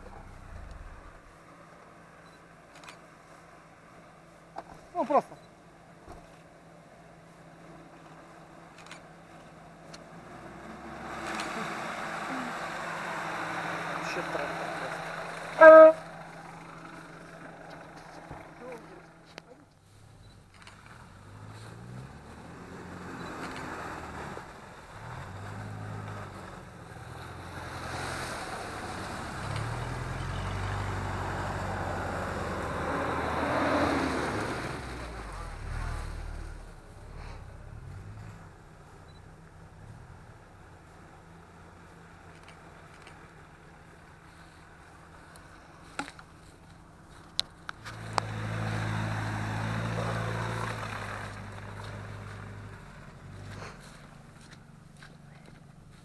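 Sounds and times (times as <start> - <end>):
vehicle engine humming: 0.0 - 56.0
tyres rushing through mud and water: 7.7 - 19.0, 20.5 - 38.4, 47.9 - 54.3.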